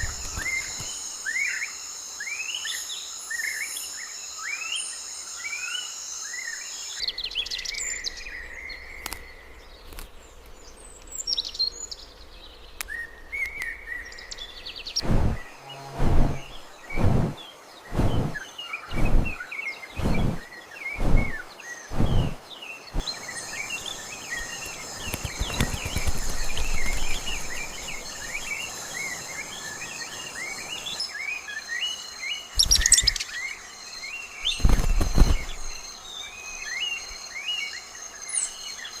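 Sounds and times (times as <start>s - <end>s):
small birds chirping: 0.0s - 39.0s
high insect-like drone: 15.0s - 17.4s, 23.0s - 30.9s.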